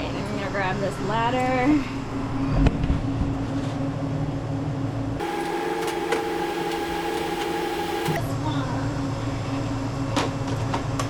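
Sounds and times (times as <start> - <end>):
higher-pitched hum: 5.2 - 8.2
mechanical hum: 5.2 - 8.2.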